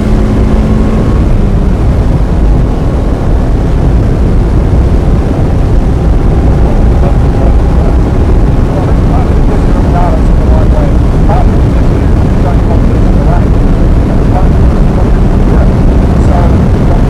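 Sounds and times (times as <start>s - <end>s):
car engine running at speed: 0.0s - 17.0s
road and wind noise: 0.0s - 17.0s.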